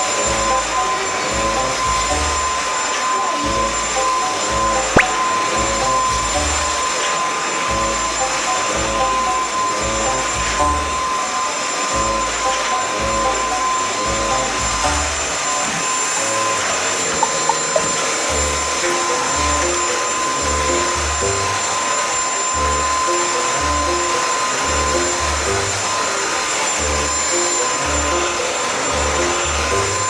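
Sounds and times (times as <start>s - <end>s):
vacuum cleaner motor whine: 0.0s - 30.0s
background music with bass line: 0.2s - 2.7s, 3.5s - 6.8s, 7.7s - 11.1s, 12.0s - 15.3s, 18.3s - 21.8s, 26.8s - 30.0s.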